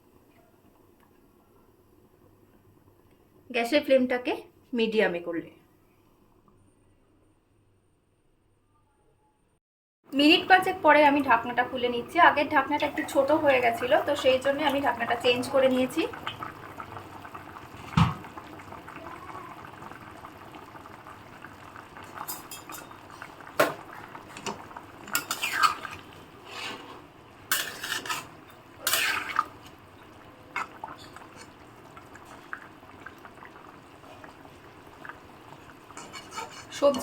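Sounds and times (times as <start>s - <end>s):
curry simmering: 10.2s - 37.0s
spoon scraping metal pot: 24.4s - 29.7s, 30.6s - 31.6s, 35.9s - 37.0s.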